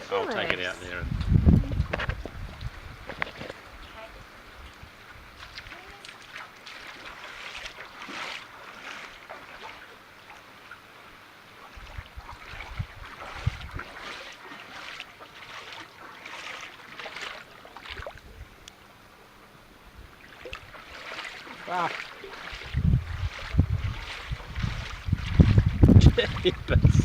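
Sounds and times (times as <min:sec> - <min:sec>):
floodwater splashing: 0:01.6 - 0:18.9, 0:19.8 - 0:27.0.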